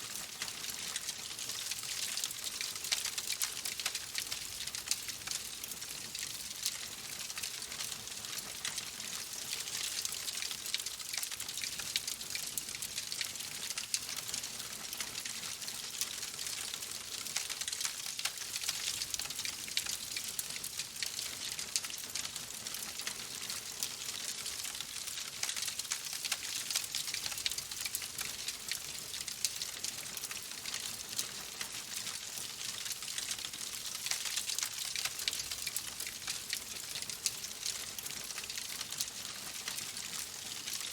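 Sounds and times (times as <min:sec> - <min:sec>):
wood fire crackling: 0:22.2 - 0:40.8.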